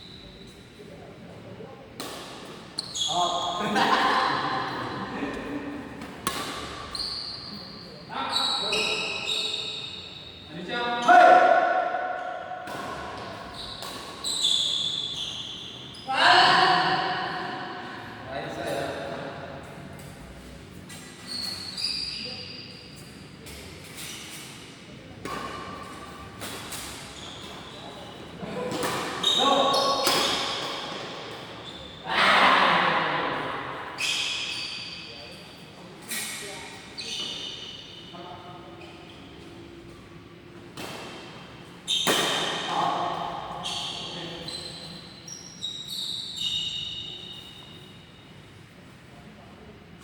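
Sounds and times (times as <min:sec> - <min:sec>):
shoes squeaking on hall floor: 0:00.0 - 0:01.1, 0:02.0 - 0:04.0, 0:05.6 - 0:11.4, 0:12.0 - 0:16.7, 0:19.7 - 0:32.7, 0:33.9 - 0:48.6
racket hitting shuttlecock: 0:06.0 - 0:06.9, 0:11.6 - 0:14.2, 0:30.0 - 0:31.3, 0:42.0 - 0:42.6.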